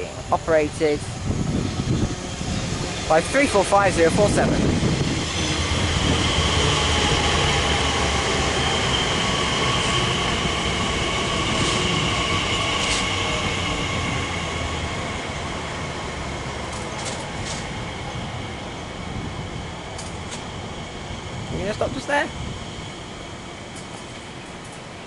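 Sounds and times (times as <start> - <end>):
electric train slowing: 0.0 - 25.0.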